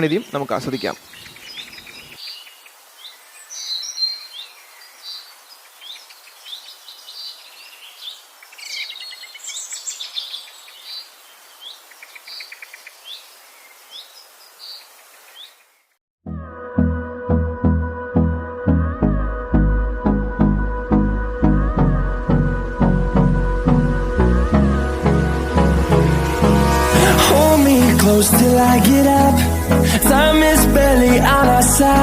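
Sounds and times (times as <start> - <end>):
faint outdoor hiss: 0.0 - 16.0, 24.8 - 32.0
wild birds chirping: 0.0 - 16.0.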